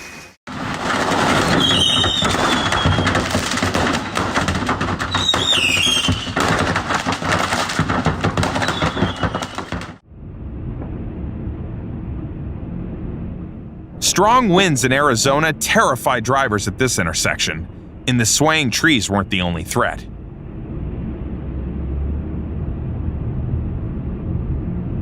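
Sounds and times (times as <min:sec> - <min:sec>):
debris crackling and clattering: 0:00.5 - 0:10.0
tornado wind rushing: 0:00.5 - 0:15.5
short falling squeals: 0:01.2 - 0:04.3, 0:05.0 - 0:06.4, 0:08.6 - 0:09.8.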